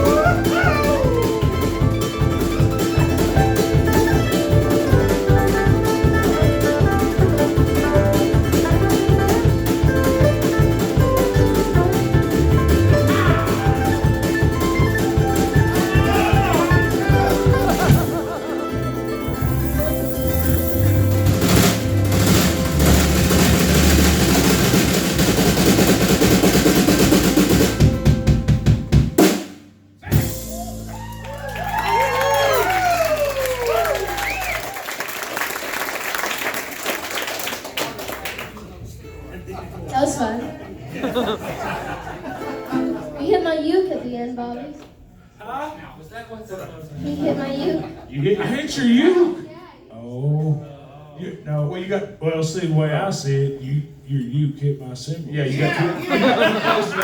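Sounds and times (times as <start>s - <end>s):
plucked strings and ukulele: 0.0s - 25.1s, 42.3s - 43.2s
band playing fast tune: 0.0s - 37.2s
band hitting accented hits: 19.1s - 30.9s
drum beat with cymbal: 19.2s - 31.0s.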